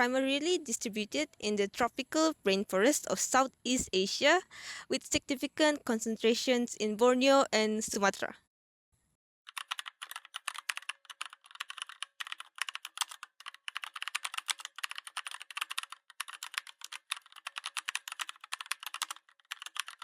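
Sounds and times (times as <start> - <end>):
fast typing on computer keyboard: 9.5 - 20.0.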